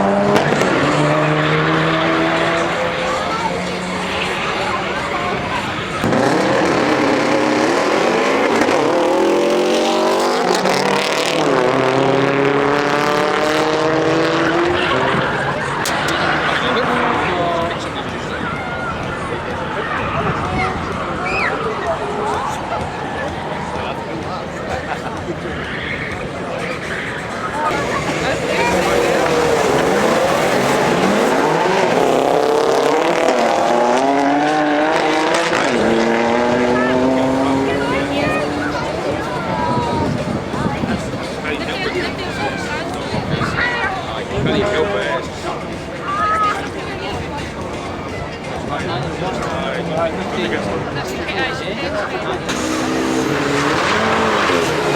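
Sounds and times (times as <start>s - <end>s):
car engine revving: 0.0s - 43.6s, 46.6s - 54.9s.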